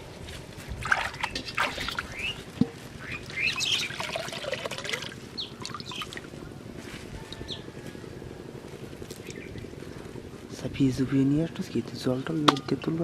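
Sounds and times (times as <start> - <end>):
water splashing and trickling: 0.6 - 2.4, 3.1 - 6.3.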